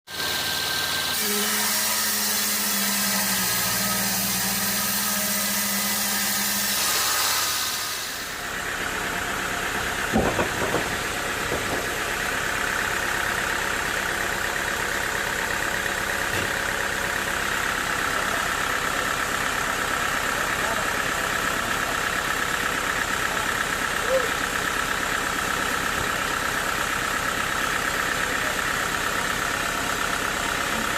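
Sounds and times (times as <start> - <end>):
sawmill machinery running: 0.1 - 30.9
sharp knocks: 10.1 - 11.9.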